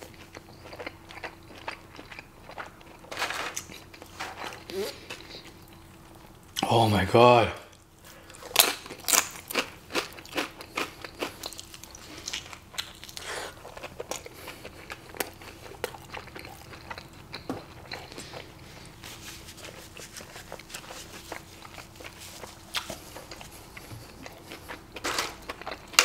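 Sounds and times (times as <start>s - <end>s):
biting and chewing: 7.8s - 19.0s, 19.6s - 26.0s.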